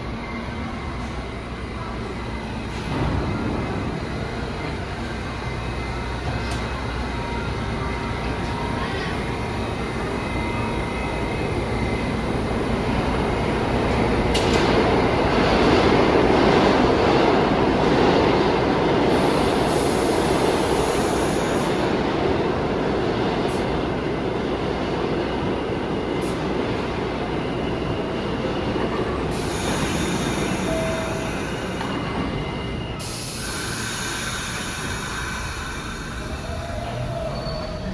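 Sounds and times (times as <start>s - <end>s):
subway train rumble: 0.0s - 37.9s
high-pitched wheel squeal: 36.2s - 37.9s.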